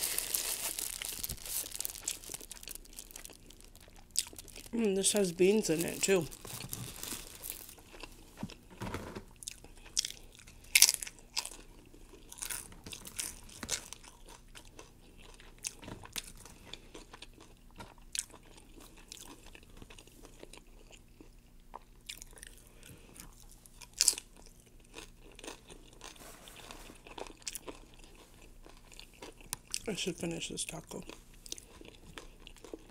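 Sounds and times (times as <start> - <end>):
crunchy food crunching: 0.0 - 8.6, 9.3 - 32.9
wet chewing: 0.7 - 4.8.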